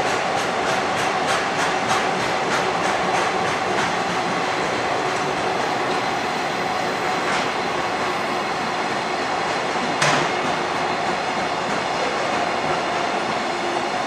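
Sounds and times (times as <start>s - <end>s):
wheels clacking over rail joints: 0.0s - 8.0s
freight train wheels rumbling: 0.0s - 14.0s.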